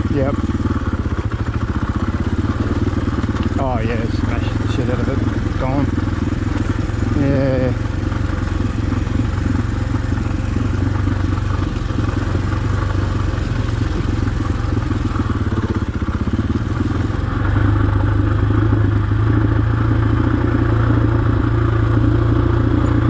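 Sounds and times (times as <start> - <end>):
dirt bike engine running: 0.0 - 23.0.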